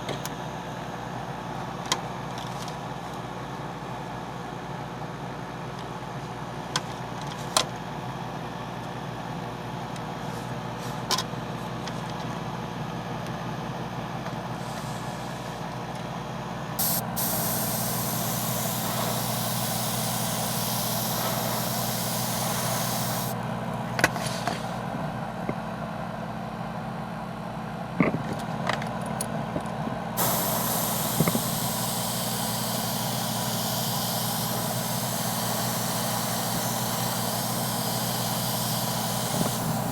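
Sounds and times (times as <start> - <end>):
airbrush spraying hiss: 16.8 - 23.4, 30.2 - 39.9
air compressor humming: 16.8 - 23.5, 30.2 - 39.9.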